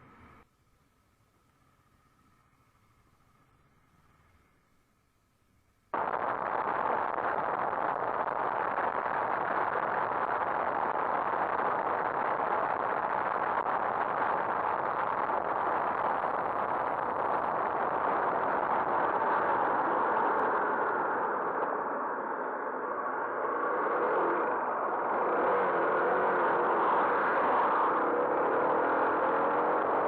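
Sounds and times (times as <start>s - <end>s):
wind and road noise: 6.0s - 30.0s.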